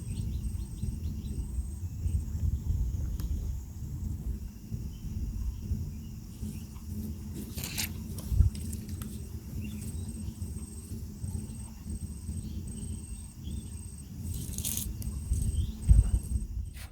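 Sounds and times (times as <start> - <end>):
insect chirping: 0.0 - 16.9
low rumble of wind: 0.0 - 16.9
brief rustle: 7.4 - 9.1.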